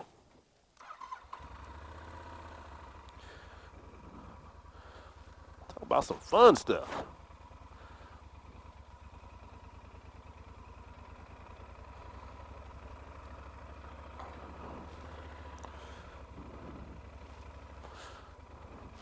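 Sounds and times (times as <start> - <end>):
motorcycle engine running at low revs: 1.2 - 19.0.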